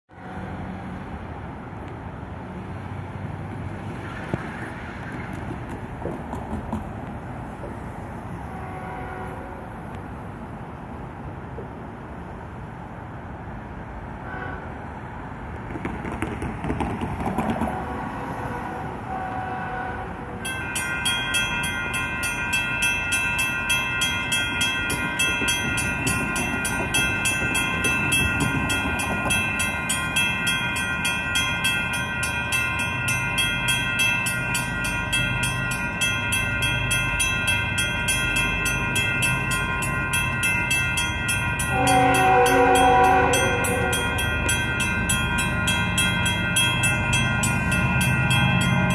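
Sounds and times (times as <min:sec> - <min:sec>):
loud train horn blast: 0:08.4 - 0:09.8, 0:14.2 - 0:14.9, 0:17.6 - 0:20.4, 0:41.7 - 0:44.3
railroad crossing bells ringing: 0:17.6 - 0:48.9.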